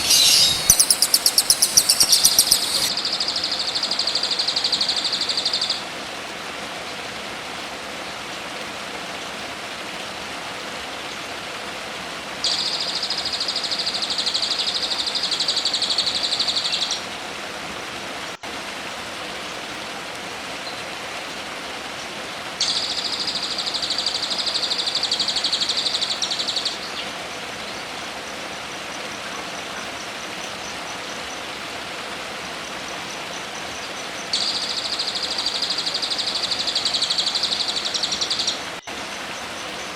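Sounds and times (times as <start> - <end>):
songbird rapid trill: 0.0 - 5.8, 22.6 - 27.0, 33.7 - 38.6
steady background hiss: 0.0 - 39.9.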